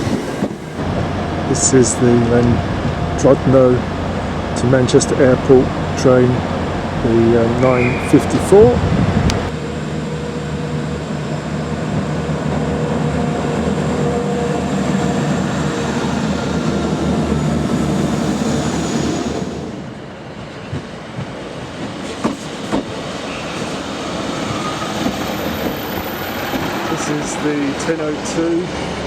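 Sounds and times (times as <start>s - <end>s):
diesel train engine throbbing: 0.0s - 20.2s
train wheels clicking on rails: 20.4s - 29.0s.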